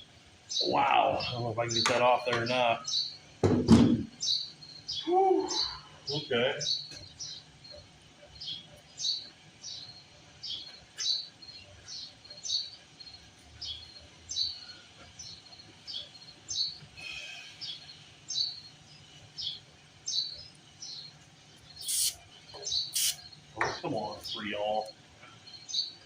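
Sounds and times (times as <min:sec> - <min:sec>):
small bird chirping: 0:00.0 - 0:03.4, 0:04.1 - 0:26.0.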